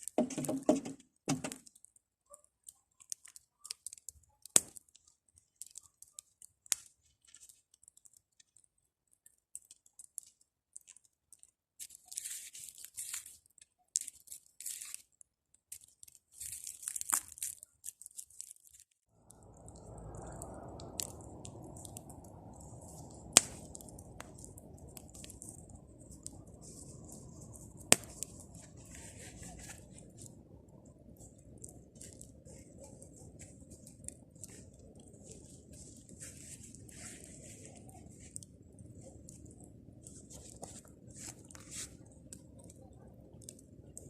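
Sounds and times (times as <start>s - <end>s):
bonfire crackling: 0.0s - 44.0s.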